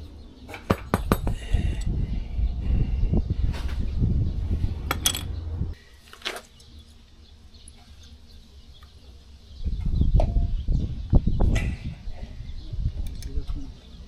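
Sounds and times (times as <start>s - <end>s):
low rumbling handling noise: 1.0s - 5.8s
metal tools clinking: 4.9s - 5.4s.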